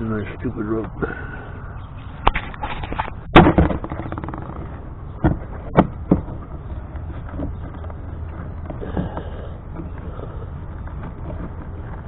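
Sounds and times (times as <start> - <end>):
brief rattle: 2.2 - 4.8.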